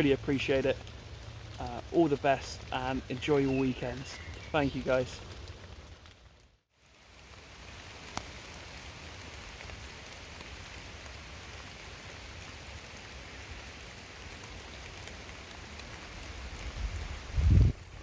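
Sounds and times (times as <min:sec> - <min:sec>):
drops ticking: 0:00.0 - 0:05.9
steady rain falling: 0:00.0 - 0:18.0.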